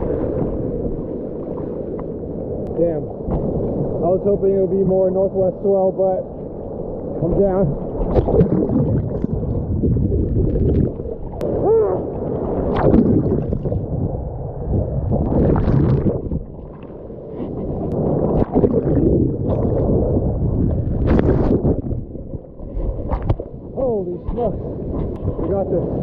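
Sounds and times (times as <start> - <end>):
seawater splashing and churning: 0.0 - 26.0
bubbling gurgle: 7.2 - 17.0, 17.8 - 23.6.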